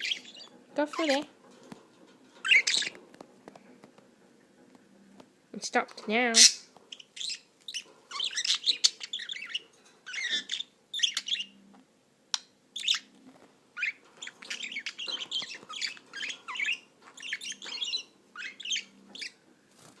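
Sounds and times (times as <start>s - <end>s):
budgerigar chirping: 0.0s - 1.2s, 6.4s - 11.6s, 12.8s - 13.1s, 13.8s - 19.4s.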